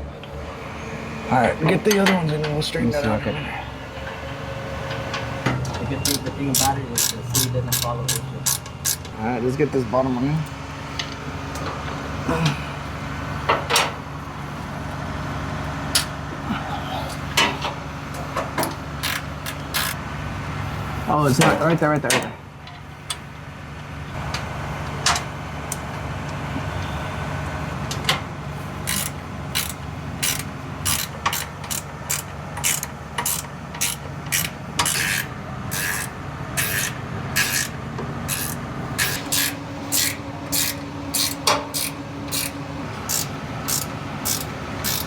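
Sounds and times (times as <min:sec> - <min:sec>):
steady low hum: 0:00.0 - 0:21.4
ratchet wrench strokes: 0:06.1 - 0:09.1, 0:19.0 - 0:20.0, 0:28.8 - 0:45.0.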